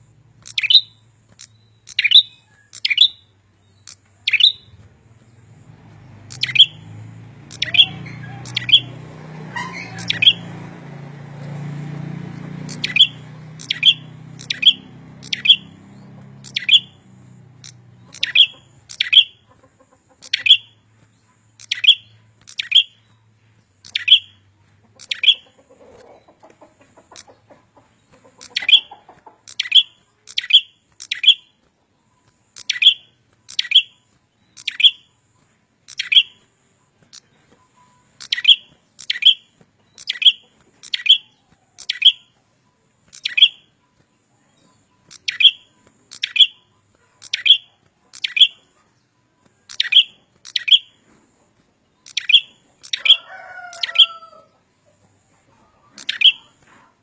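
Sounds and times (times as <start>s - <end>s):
songbird chirping: 0.0s - 57.0s.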